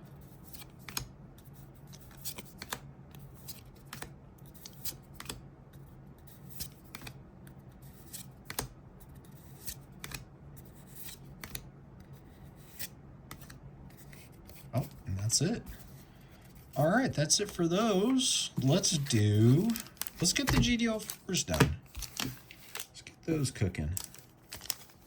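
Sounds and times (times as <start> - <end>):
trading cards snapping and sliding: 0.6 - 1.1, 2.0 - 5.4, 6.4 - 7.2, 8.0 - 8.7, 9.4 - 10.2, 10.8 - 11.7, 12.6 - 14.7
steady low hum: 2.8 - 25.0.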